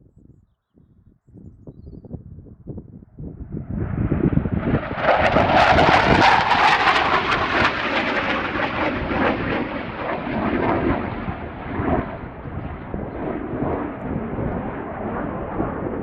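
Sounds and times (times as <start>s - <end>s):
jet passing close by: 3.6s - 16.0s.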